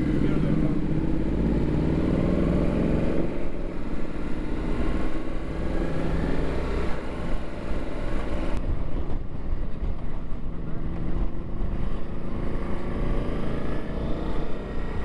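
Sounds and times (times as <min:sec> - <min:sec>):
motorcycle engine rumble: 0:00.0 - 0:15.0
wind noise on microphone: 0:08.5 - 0:13.4.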